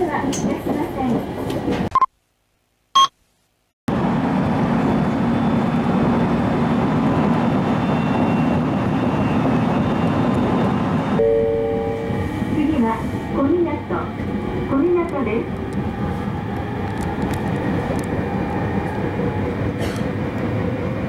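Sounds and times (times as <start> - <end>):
train rumbling along track: 0.0 - 1.9, 3.9 - 21.0
short beep: 11.2 - 12.5.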